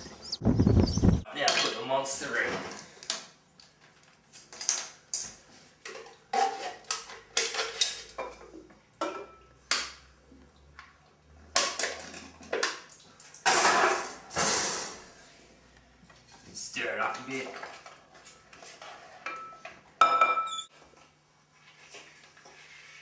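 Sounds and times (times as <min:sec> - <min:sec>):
pots and pans clattering: 0:05.8 - 0:09.4, 0:11.6 - 0:15.0.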